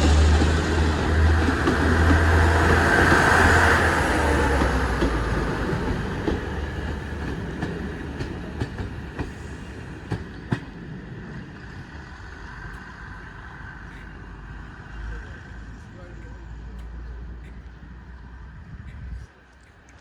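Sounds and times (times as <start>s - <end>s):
wheels clicking over rail joints: 0.0s - 14.2s
train rolling past: 0.0s - 18.7s.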